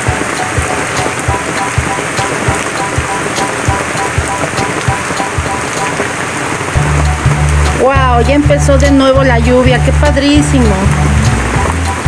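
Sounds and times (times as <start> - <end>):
drops tapping sharply: 0.0 - 6.2
steady rain falling: 0.0 - 12.0.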